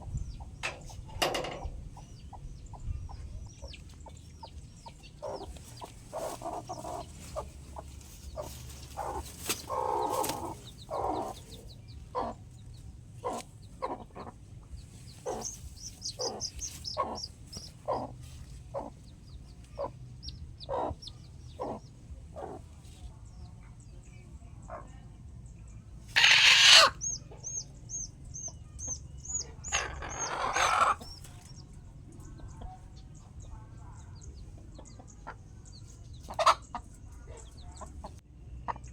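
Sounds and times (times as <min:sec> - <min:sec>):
chickens clucking: 0:00.0 - 0:23.2, 0:26.1 - 0:38.9
chicken squawk: 0:26.1 - 0:27.2, 0:29.6 - 0:31.2, 0:36.3 - 0:36.6.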